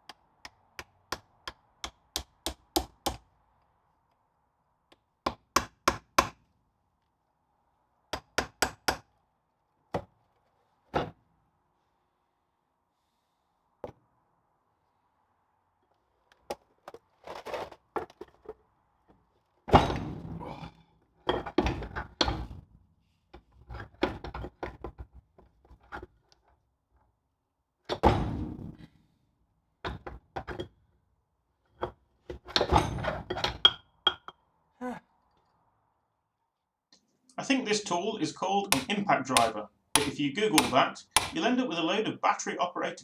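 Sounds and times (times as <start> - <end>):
heavy thuds: 38.7 - 41.4.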